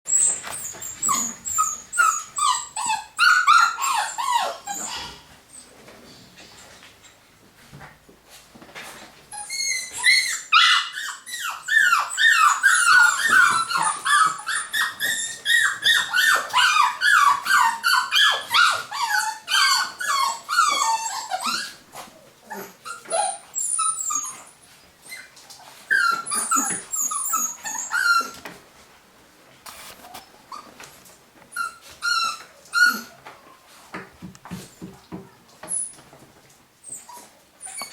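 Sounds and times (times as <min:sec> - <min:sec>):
puppies whimpering and yelping: 0:00.1 - 0:05.8, 0:09.3 - 0:28.6, 0:31.5 - 0:33.8, 0:36.8 - 0:37.9.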